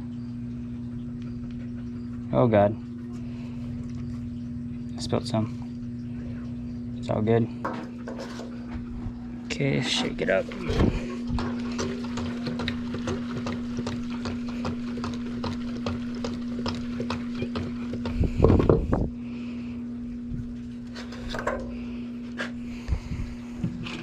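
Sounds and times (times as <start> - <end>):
steady hum: 0.0 - 24.0
fuel sloshing in shaken can: 10.3 - 18.0.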